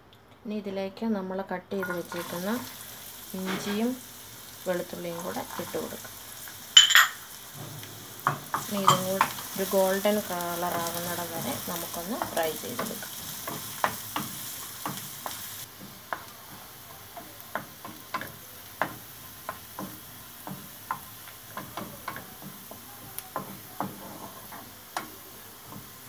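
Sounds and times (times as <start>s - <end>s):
garlic sizzling in hot oil: 1.8s - 26.0s
wooden spatula scraping a pan: 7.5s - 26.0s.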